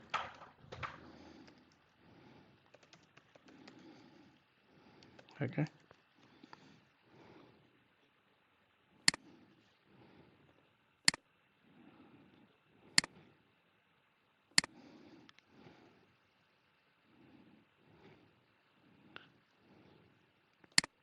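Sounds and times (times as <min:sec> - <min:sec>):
soft breathing: 0:00.0 - 0:21.0
computer mouse clicks: 0:00.8 - 0:04.2, 0:05.0 - 0:06.6, 0:14.6 - 0:15.5, 0:20.5 - 0:21.0.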